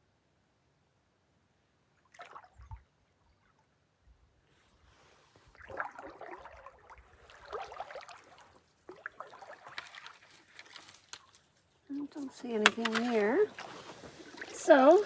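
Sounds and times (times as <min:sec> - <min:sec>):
canoe paddle strokes in water: 0:04.9 - 0:11.3, 0:12.1 - 0:15.0
water drips: 0:05.6 - 0:15.0
small ticks: 0:09.7 - 0:11.5.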